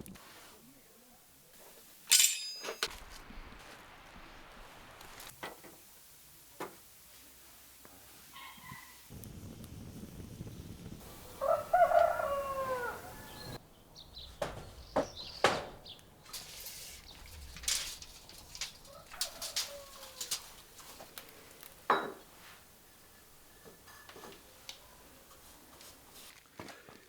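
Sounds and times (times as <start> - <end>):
rooster crowing: 11.1 - 13.6, 18.6 - 20.8
knocks and clatters: 14.2 - 21.2.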